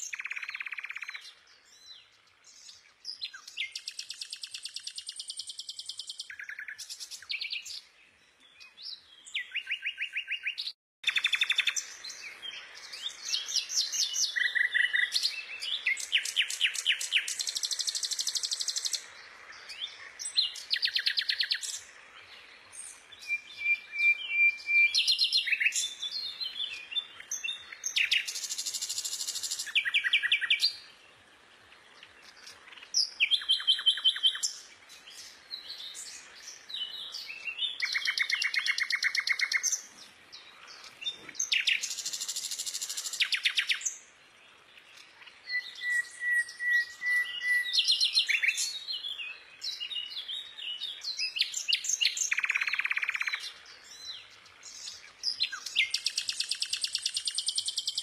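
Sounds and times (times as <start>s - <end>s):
whistled bird notes: 19.6s - 30.9s, 32.0s - 44.0s, 44.9s - 58.0s.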